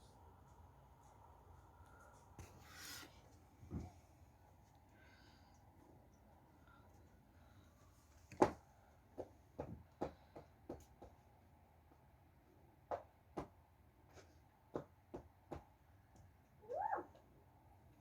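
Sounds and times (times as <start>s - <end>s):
sharp knocks and taps: 8.3s - 11.2s, 14.7s - 16.3s.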